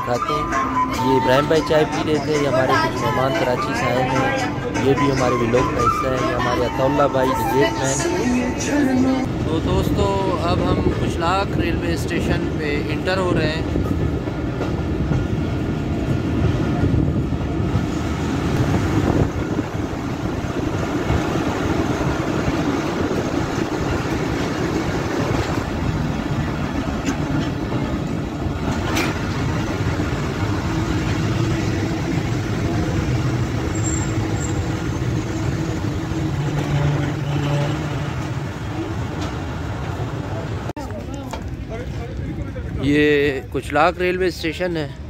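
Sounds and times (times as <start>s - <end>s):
passenger train running: 0.0s - 45.0s.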